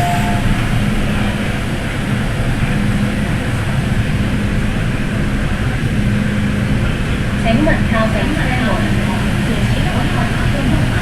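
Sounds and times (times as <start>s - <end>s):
low hum: 0.0s - 1.3s
train wheels rumbling on rail: 0.0s - 11.0s.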